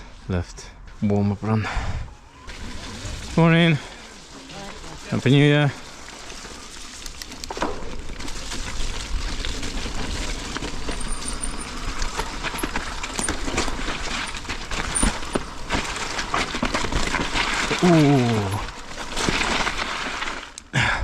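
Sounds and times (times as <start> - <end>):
bike tyres on wet dirt: 1.7 - 21.0
chain and frame clattering: 10.8 - 15.5.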